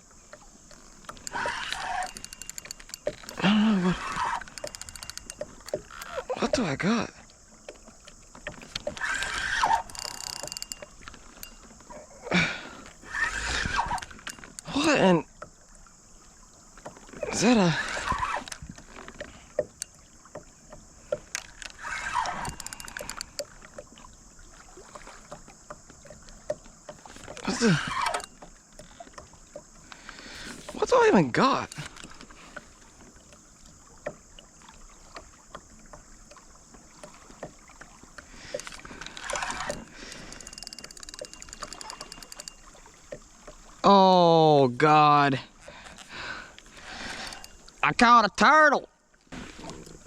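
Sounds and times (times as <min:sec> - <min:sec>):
fishing reel clicks: 0:00.6 - 0:06.4, 0:08.4 - 0:11.8, 0:13.0 - 0:14.9, 0:17.6 - 0:20.0, 0:21.1 - 0:23.7, 0:27.1 - 0:29.2, 0:29.9 - 0:32.4, 0:38.4 - 0:43.0, 0:46.7 - 0:47.8.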